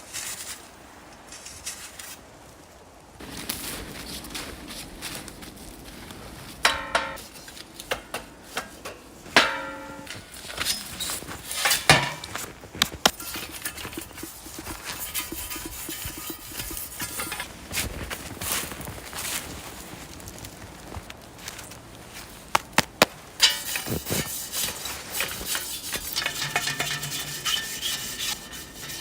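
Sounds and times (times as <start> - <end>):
metal cookware clanking: 6.7 - 8.2, 8.9 - 12.4, 13.1 - 17.5, 23.4 - 29.0.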